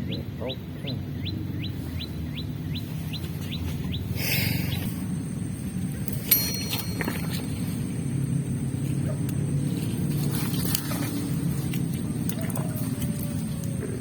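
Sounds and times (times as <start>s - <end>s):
steady low rumble: 0.0s - 14.0s
sharp click with ringing: 6.0s - 8.0s.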